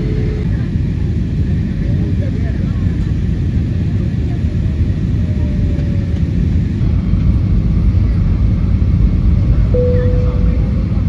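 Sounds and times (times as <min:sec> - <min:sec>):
airplane cabin rumble: 0:09.8 - 0:11.0.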